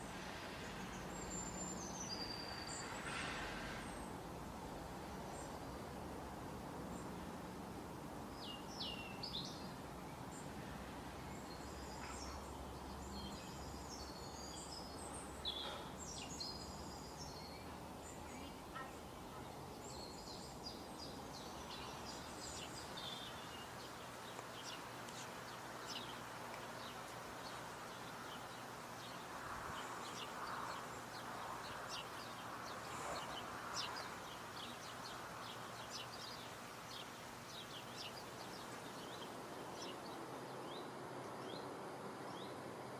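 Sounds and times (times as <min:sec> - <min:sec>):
outdoor background hiss: 0:00.0 - 0:42.9
birds chirping: 0:08.3 - 0:41.6.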